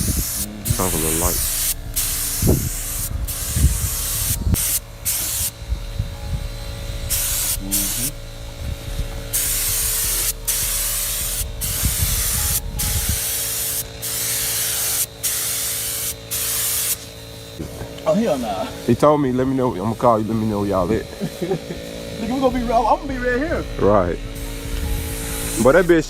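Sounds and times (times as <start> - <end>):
paint spray gun hissing: 0.0 - 6.1, 7.0 - 23.3, 24.3 - 26.0
low rumble: 0.0 - 13.3, 22.0 - 26.0.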